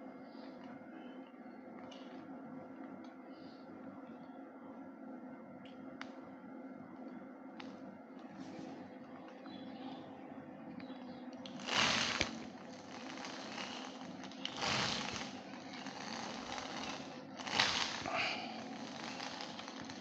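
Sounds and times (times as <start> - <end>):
small motor humming: 11.4 - 20.0.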